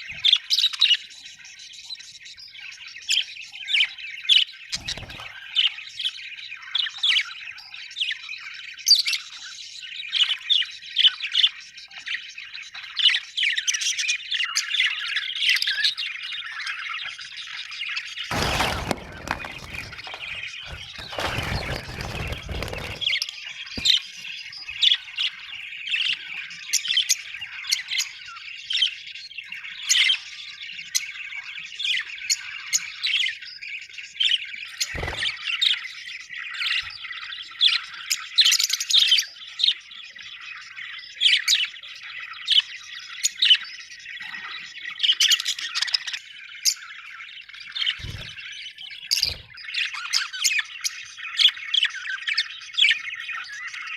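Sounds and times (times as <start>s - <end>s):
budgerigars chattering: 0.0s - 53.9s
rustling: 18.3s - 23.2s, 23.8s - 24.0s.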